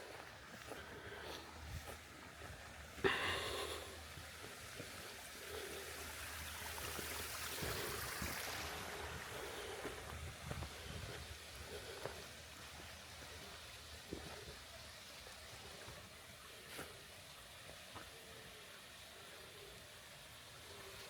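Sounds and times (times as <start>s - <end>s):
creek trickling over rocks: 0.0s - 21.0s.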